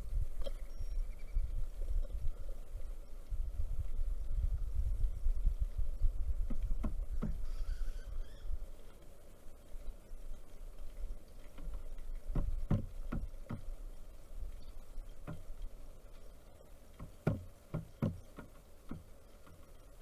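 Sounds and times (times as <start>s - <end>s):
woodpecker pecking: 6.4s - 8.5s, 10.8s - 19.9s.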